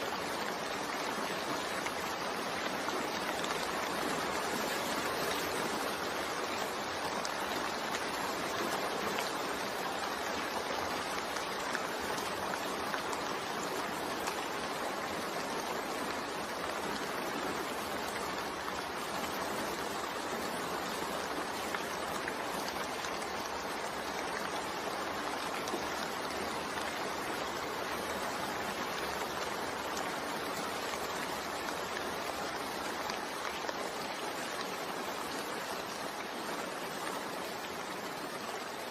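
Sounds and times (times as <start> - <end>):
gentle rainfall: 0.0 - 38.9.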